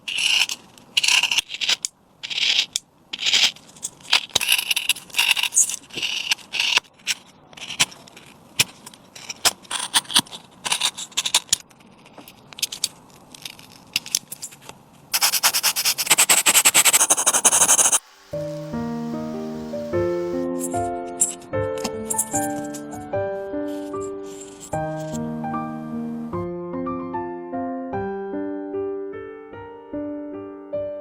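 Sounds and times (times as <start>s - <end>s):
hand tools scraping wood: 0.0s - 18.0s, 19.6s - 22.9s, 23.8s - 25.2s.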